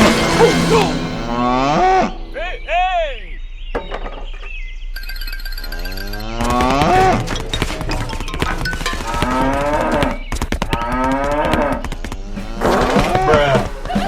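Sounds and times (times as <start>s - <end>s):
cattle mooing: 5.7s - 14.0s.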